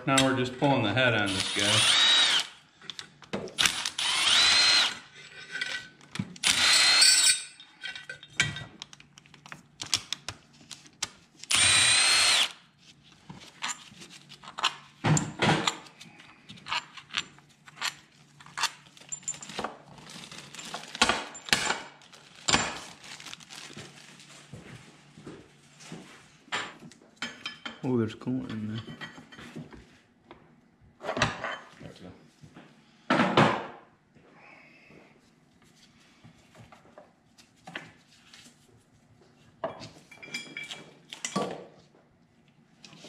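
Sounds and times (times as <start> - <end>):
cordless drill spinning: 1.2 - 2.6, 3.6 - 5.2, 6.4 - 7.4, 11.5 - 12.6
clinks of bolts and tools: 5.2 - 6.2, 6.8 - 10.0, 39.7 - 41.6.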